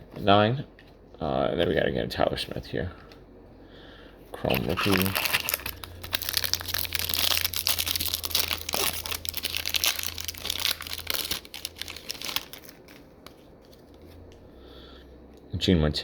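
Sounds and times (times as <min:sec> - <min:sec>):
plastic wrapper crinkling and tearing: 0:04.4 - 0:14.3.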